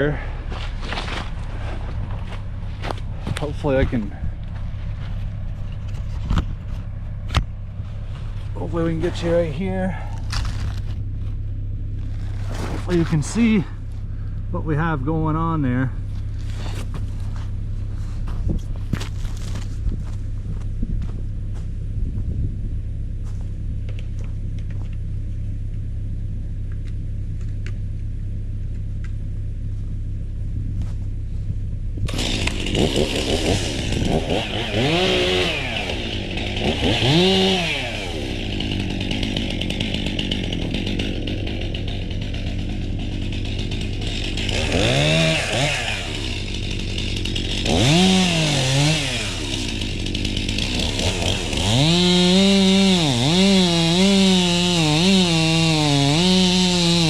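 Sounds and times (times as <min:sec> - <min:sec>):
chainsaw cutting wood: 0:00.0 - 0:11.0, 0:12.0 - 0:13.7, 0:16.3 - 0:17.4, 0:18.4 - 0:19.8, 0:32.1 - 0:57.0
diesel engine idling: 0:00.0 - 0:51.9.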